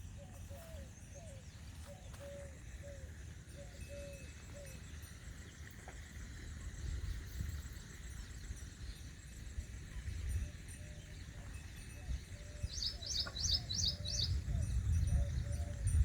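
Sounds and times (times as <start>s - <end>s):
faint high bird chirps: 10.0s - 16.0s
low bending bird calls: 12.0s - 16.0s.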